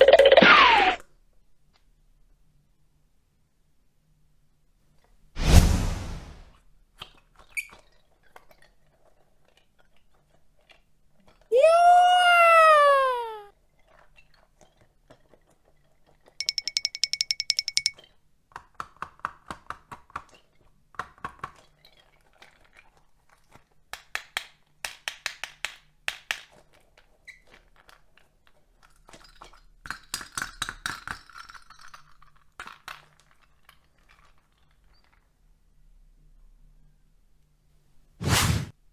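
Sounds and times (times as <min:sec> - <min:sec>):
small hard objects clicking: 0:16.4 - 0:17.9.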